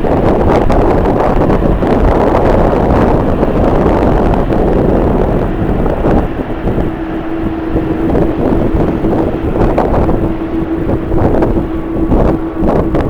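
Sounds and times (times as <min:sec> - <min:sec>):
steady hum: 0:00.0 - 0:13.0
wind buffeting microphone: 0:00.0 - 0:13.0.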